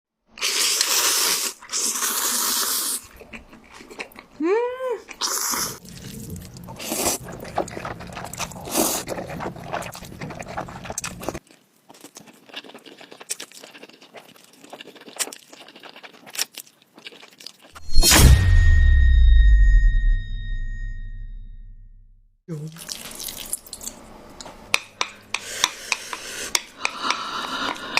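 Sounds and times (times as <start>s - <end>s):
crunching and chewing: 3.0s - 4.4s, 5.1s - 17.8s
loud sound: 17.8s - 22.3s
short rising and falling tone: 17.8s - 22.3s.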